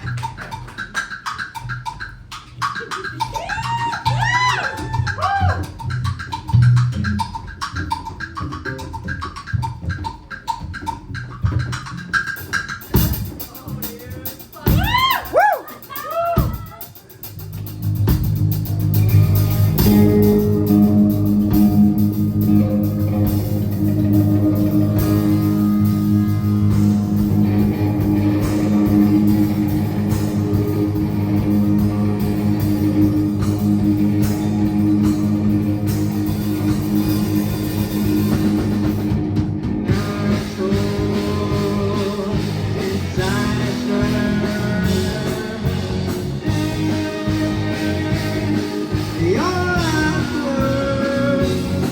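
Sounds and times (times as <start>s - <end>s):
rock band playing: 0.0s - 51.9s
person singing: 39.9s - 51.9s.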